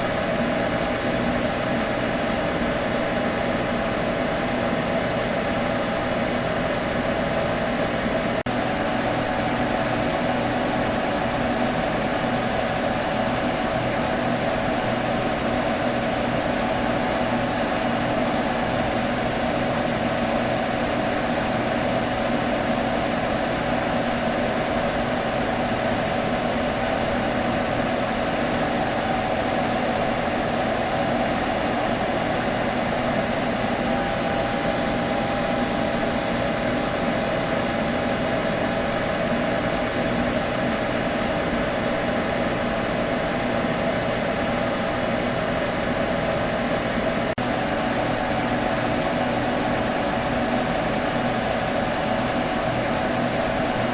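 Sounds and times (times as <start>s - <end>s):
computer low hum: 8.5s - 42.6s
computer fans hissing: 8.5s - 43.1s.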